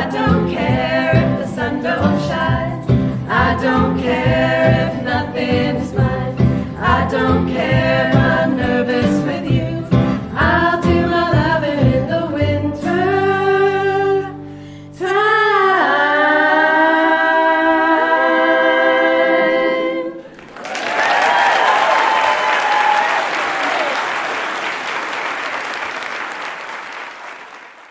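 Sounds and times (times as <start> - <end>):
women's choir singing with band: 0.0 - 14.4, 15.0 - 20.3
audience applause: 20.3 - 27.9.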